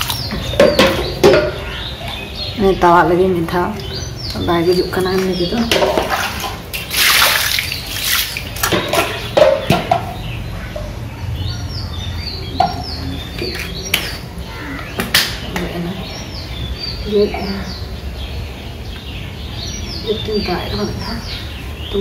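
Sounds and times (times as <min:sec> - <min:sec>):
fish slapping on wet concrete: 0:00.0 - 0:01.4, 0:03.8 - 0:10.1, 0:13.4 - 0:15.7
small birds chirping: 0:00.0 - 0:22.0.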